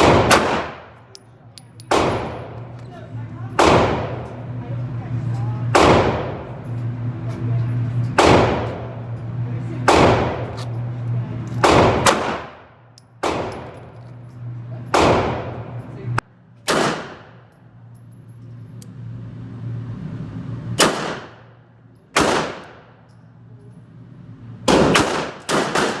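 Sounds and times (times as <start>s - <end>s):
pistol shots echoing: 0.0s - 1.1s, 1.8s - 2.8s, 3.6s - 4.4s, 5.7s - 6.5s, 8.2s - 9.0s, 9.8s - 10.6s, 11.6s - 13.8s, 15.0s - 15.8s, 16.7s - 17.5s, 20.8s - 21.5s, 22.2s - 23.0s, 24.7s - 26.0s.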